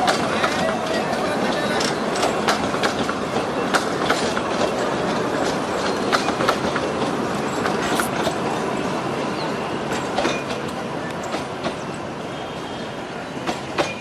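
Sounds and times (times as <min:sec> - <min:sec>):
train rumbling on rails: 0:00.0 - 0:14.0.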